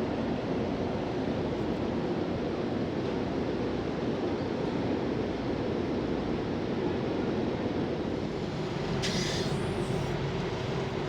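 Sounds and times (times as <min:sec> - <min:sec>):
short hiss: 0:09.0 - 0:09.6.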